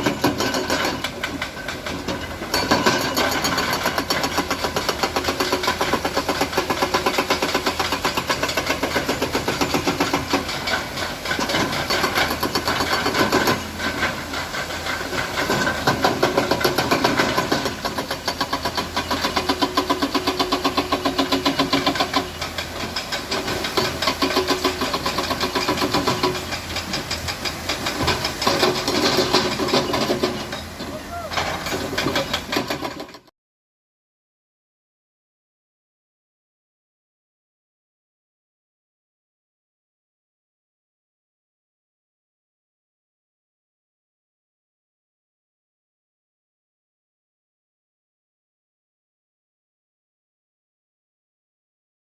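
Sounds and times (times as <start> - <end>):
diesel truck engine knocking: 0.0 - 33.3.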